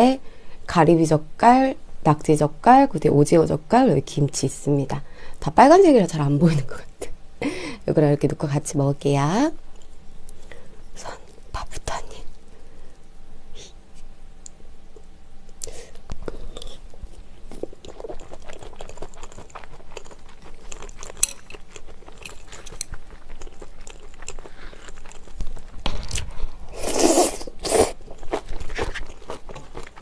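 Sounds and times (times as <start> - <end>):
person chewing food: 15.6 - 30.0.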